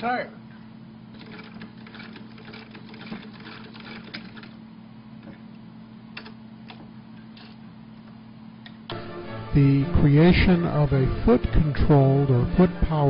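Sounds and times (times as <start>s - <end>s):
sewing machine clicking: 1.2s - 4.6s.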